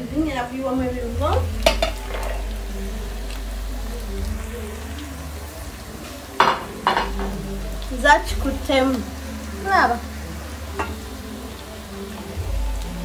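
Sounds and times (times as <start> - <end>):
vegetables sizzling in a pot: 0.0 - 13.0
knock on pot: 1.6 - 2.3, 6.4 - 7.4.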